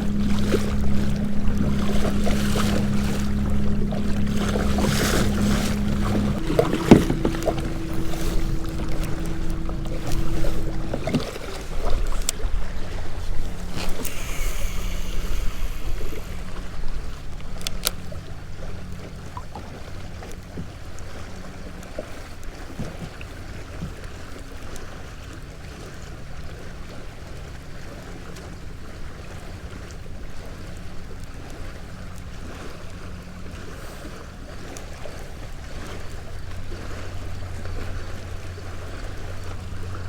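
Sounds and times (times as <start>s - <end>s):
wind buffeting microphone: 0.0s - 17.8s
low steady hum: 0.0s - 22.0s
water lapping around kayak: 0.0s - 40.0s.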